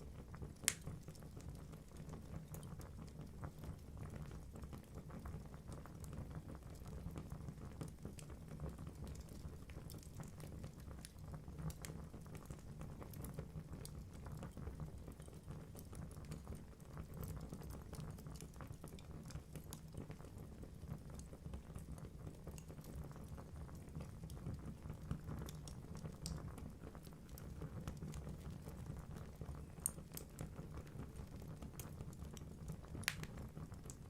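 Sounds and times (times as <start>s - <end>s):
low rumble of flames: 0.0s - 34.0s
logs crackling and popping: 0.4s - 3.8s, 15.1s - 20.4s, 21.1s - 34.0s.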